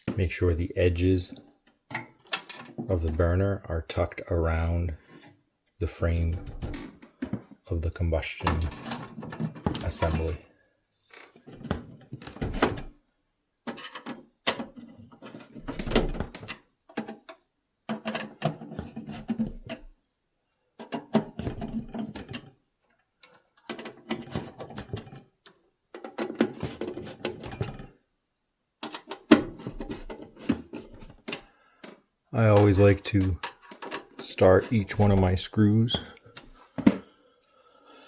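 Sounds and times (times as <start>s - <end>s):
metal parts clicking and clattering: 1.9s - 2.8s, 23.2s - 27.9s, 28.8s - 35.2s.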